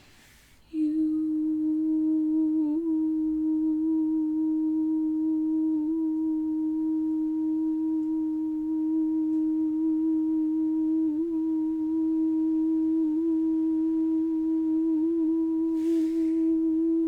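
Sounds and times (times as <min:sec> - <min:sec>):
person humming a long note: 0:00.7 - 0:17.0.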